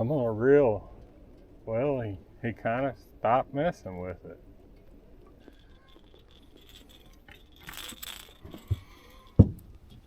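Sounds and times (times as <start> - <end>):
rustling scrape: 5.4 - 9.4.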